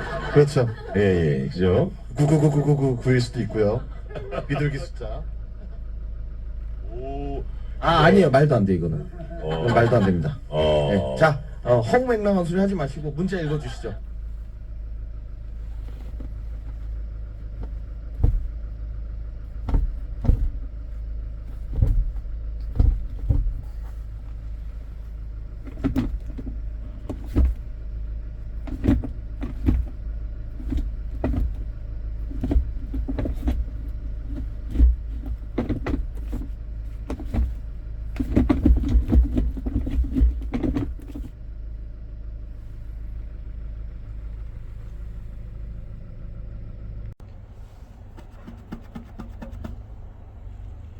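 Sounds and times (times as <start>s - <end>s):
diesel engine idling: 0.0s - 50.9s
sharp clicks and knocks: 48.2s - 49.9s.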